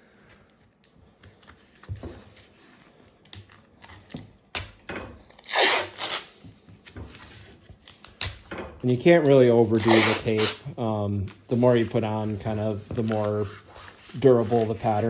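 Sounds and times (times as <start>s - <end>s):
tape crackling and clicking: 3.1s - 11.6s
tape ripping off roll: 3.8s - 6.4s, 7.8s - 11.9s.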